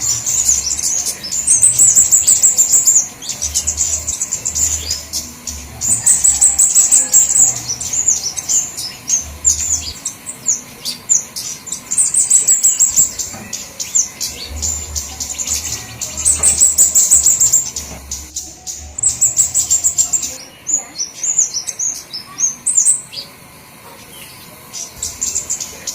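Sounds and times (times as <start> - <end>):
birds chirping high and rapid: 0.0 - 25.9.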